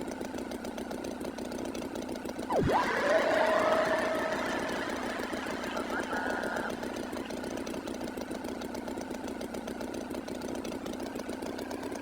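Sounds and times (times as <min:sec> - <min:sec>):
engine idling: 0:02.5 - 0:12.0.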